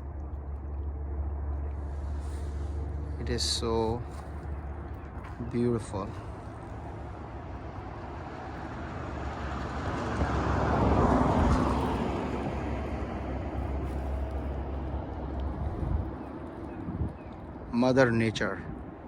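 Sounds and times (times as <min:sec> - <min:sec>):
car passing by: 0:04.9 - 0:17.0.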